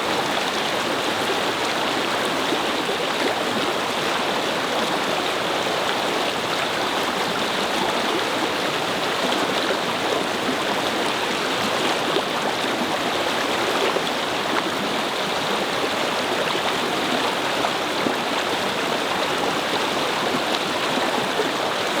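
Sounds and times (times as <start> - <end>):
brook babbling over stones: 0.0 - 22.0.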